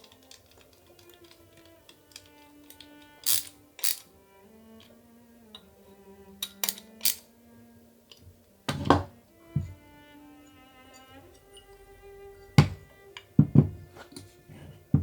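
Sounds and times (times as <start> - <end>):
clicks of small parts fitted together: 0.0 - 4.1, 6.4 - 7.3
soft background music: 0.0 - 15.0.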